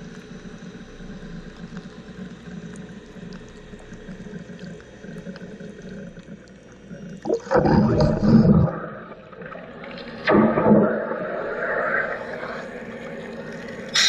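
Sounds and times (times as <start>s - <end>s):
faint ticks: 0.0s - 7.3s
hiss like flowing water: 9.0s - 14.0s.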